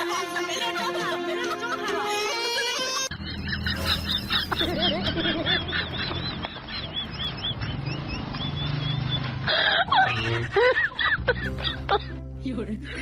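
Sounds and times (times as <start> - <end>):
birds high peeps: 5.6 - 9.4.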